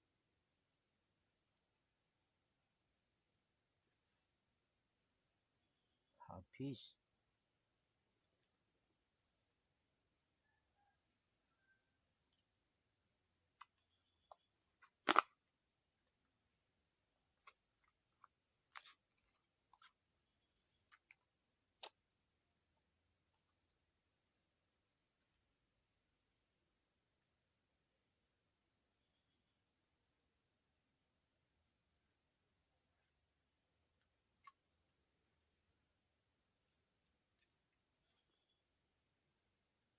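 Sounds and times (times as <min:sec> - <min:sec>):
insects droning: 0:00.0 - 0:39.9
sharp click: 0:15.1 - 0:15.3.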